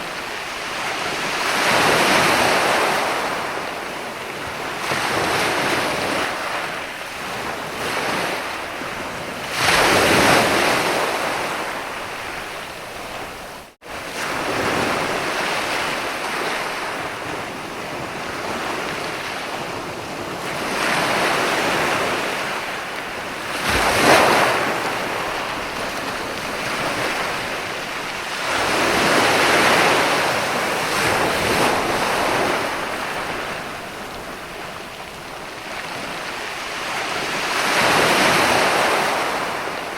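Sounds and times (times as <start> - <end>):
sea waves breaking on beach: 0.0 - 39.9.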